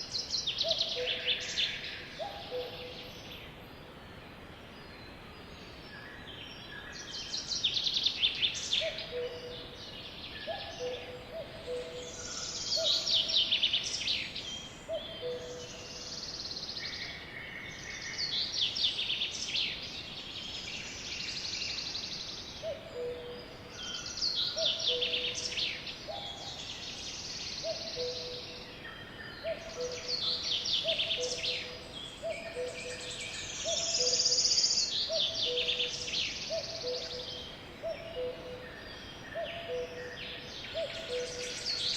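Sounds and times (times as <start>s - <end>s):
songbirds trilling and chirping: 0.0s - 41.9s.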